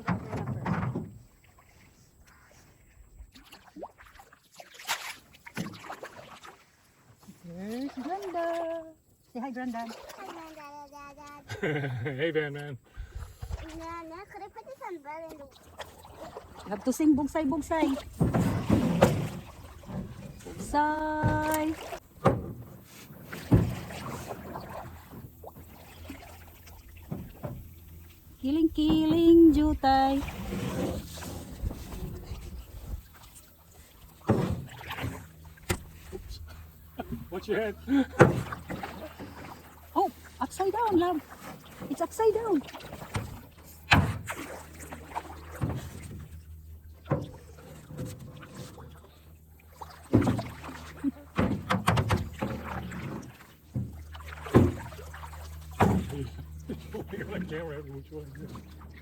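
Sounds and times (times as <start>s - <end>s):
paddle knocks and splashes: 0.0s - 8.8s, 15.1s - 59.0s
knocks against canoe hull: 18.0s - 25.8s, 34.0s - 36.3s, 38.1s - 39.6s, 42.7s - 46.3s, 50.0s - 56.8s.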